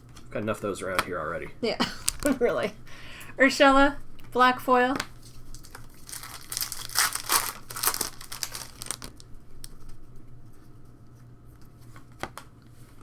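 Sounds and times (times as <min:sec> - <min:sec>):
plastic wrapper tearing and crinkling: 0:02.0 - 0:02.3, 0:05.0 - 0:10.0.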